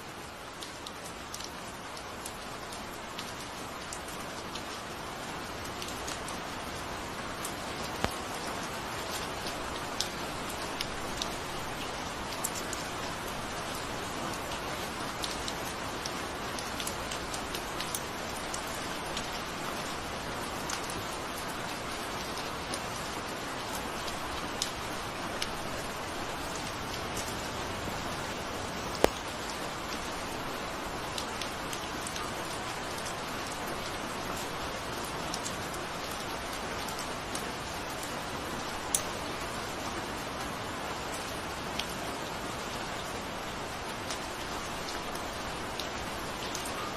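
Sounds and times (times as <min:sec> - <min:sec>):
steady rain falling: 0:00.0 - 0:46.9
sharp raindrop impacts: 0:25.4 - 0:29.8.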